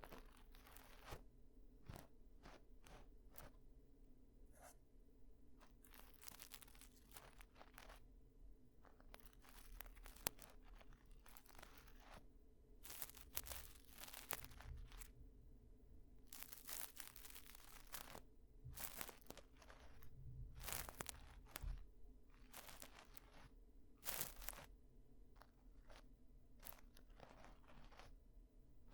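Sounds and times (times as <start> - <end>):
ear-cleaning tools scratching: 26.6 - 28.1.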